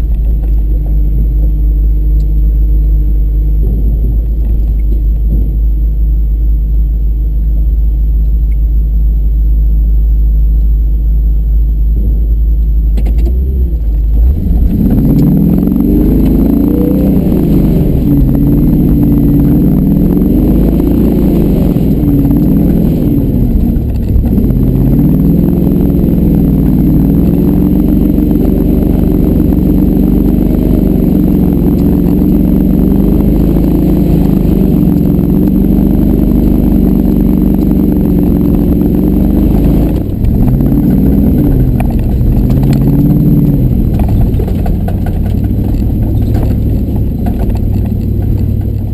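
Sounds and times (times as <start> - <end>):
truck engine revving under load: 13.2 - 48.9.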